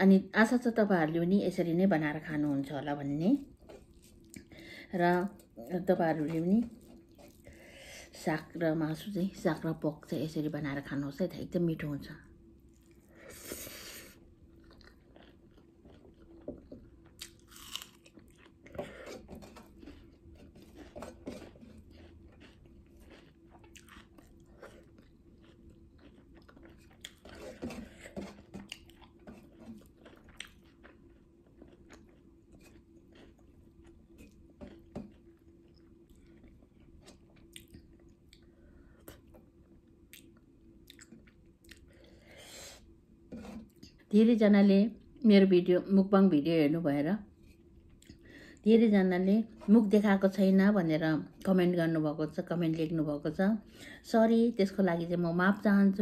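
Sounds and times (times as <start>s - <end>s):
chewing food with clicks: 14.5s - 18.7s, 19.3s - 38.5s, 40.1s - 41.9s.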